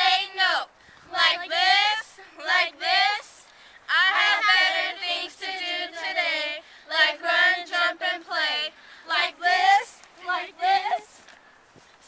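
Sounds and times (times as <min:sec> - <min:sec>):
young voices singing: 0:00.0 - 0:11.2.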